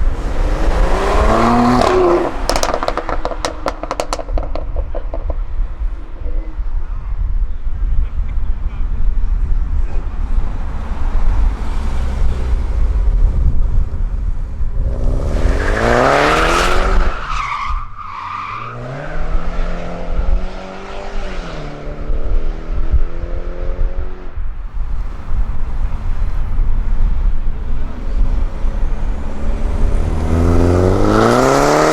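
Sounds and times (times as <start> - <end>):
car engine revving: 0.0 - 6.8, 9.4 - 31.9
wind rumble on microphone: 3.2 - 15.6, 19.2 - 31.7
tire squeal: 15.2 - 20.6.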